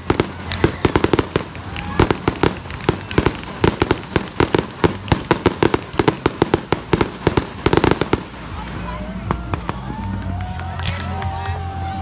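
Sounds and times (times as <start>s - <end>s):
fireworks bangs and pops: 0.0s - 11.0s.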